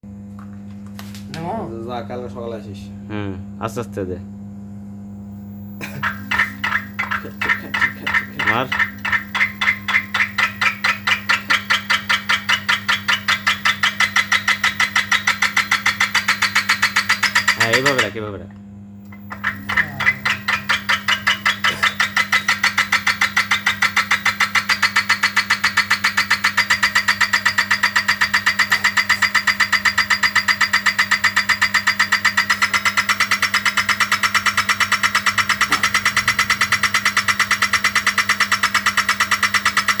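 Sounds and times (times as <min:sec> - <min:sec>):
electric motor hum: 0:00.3 - 0:40.0
gear clacking: 0:06.1 - 0:18.2, 0:19.1 - 0:40.0.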